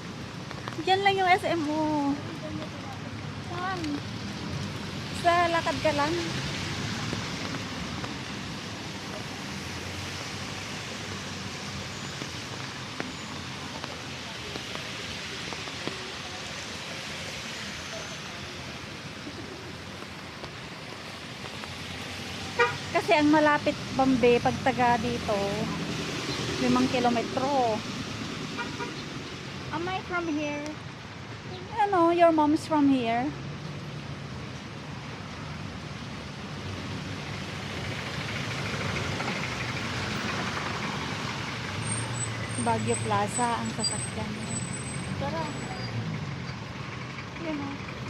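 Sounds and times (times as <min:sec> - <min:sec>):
faint traffic: 0:00.0 - 0:48.0
rain on a street: 0:00.0 - 0:48.0
vehicle engines running: 0:00.0 - 0:48.0
voices: 0:00.7 - 0:04.1, 0:22.9 - 0:27.9, 0:42.5 - 0:46.0.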